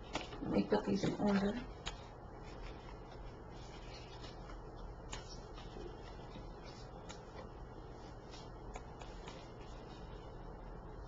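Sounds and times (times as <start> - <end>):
cards sliding: 1.8 - 7.5, 8.1 - 10.2.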